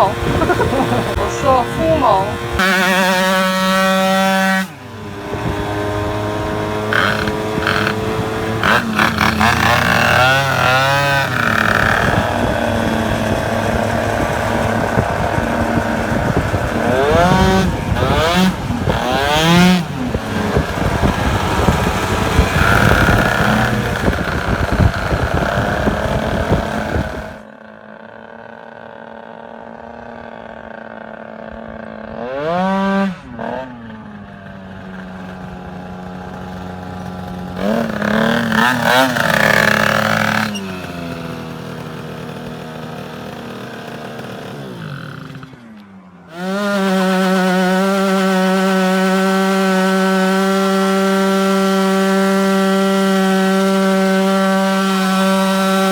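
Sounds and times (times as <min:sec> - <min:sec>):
scooter engine revving: 0:00.0 - 0:55.9.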